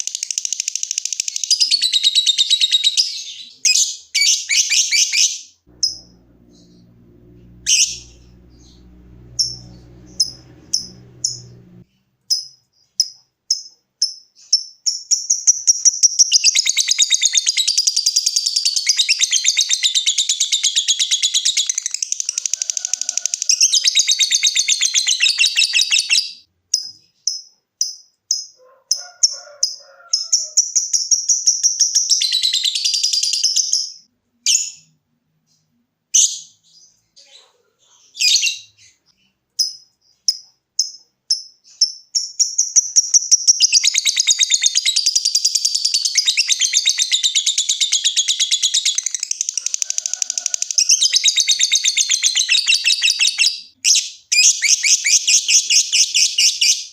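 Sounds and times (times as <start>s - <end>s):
lovebird chirps: 0.0s - 28.6s, 38.1s - 49.8s
lovebird chattering trill: 3.7s - 6.8s, 7.6s - 11.5s.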